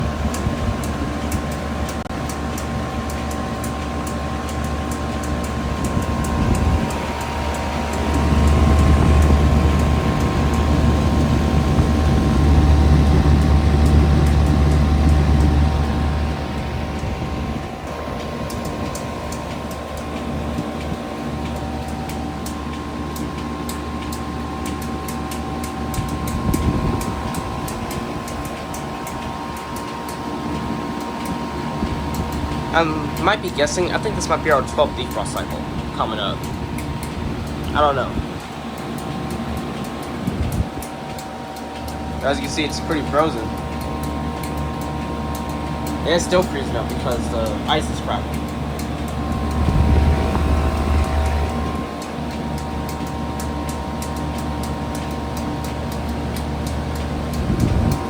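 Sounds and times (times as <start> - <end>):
heat pump unit humming: 0.0 - 58.0
light ticking: 0.2 - 58.0
steady tones: 21.5 - 58.0.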